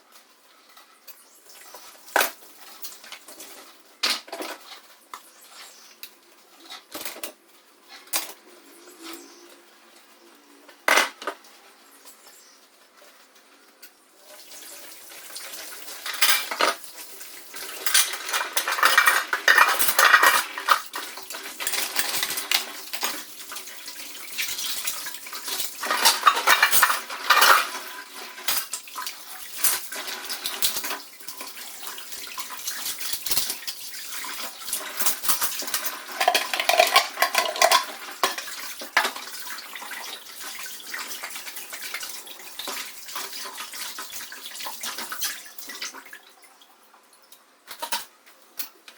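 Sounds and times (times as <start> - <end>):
dishes clinking and clattering: 1.1 - 4.9, 6.6 - 7.4, 10.8 - 11.5, 15.4 - 45.4, 47.7 - 48.1
tap water running: 1.3 - 5.3, 14.2 - 47.1.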